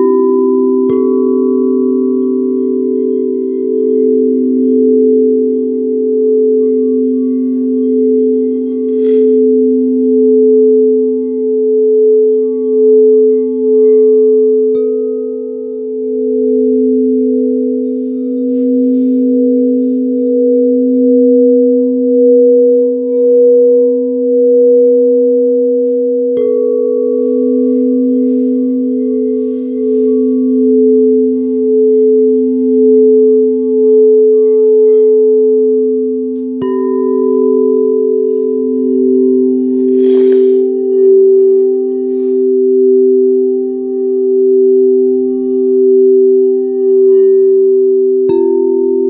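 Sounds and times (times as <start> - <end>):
singing bowls ringing: 0.0 - 49.0
singing bowl struck: 8.9 - 9.6.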